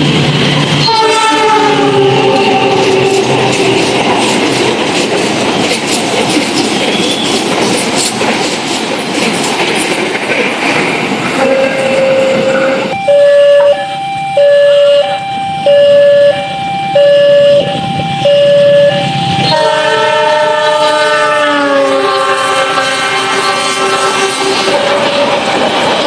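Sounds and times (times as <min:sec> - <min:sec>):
train passing: 0:00.0 - 0:26.0
train horn chord: 0:00.8 - 0:03.3, 0:11.4 - 0:25.5
two-tone warning alarm: 0:11.4 - 0:25.6.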